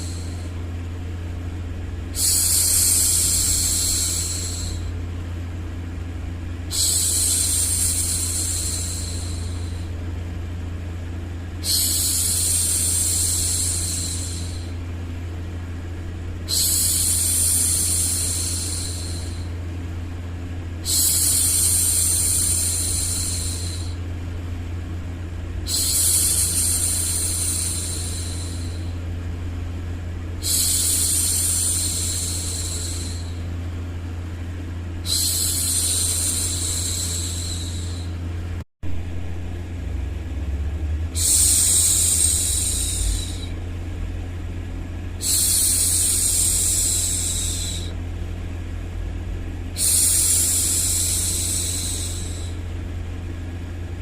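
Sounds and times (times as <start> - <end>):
woman hushing shhh: 0.0 - 0.6, 2.1 - 5.0, 6.7 - 10.0, 11.6 - 14.8, 16.4 - 19.6, 20.8 - 24.1, 25.6 - 29.1, 30.4 - 33.6, 35.0 - 38.2, 41.2 - 43.6, 45.2 - 48.0, 49.8 - 52.6
low rumbling white noise: 0.0 - 54.0.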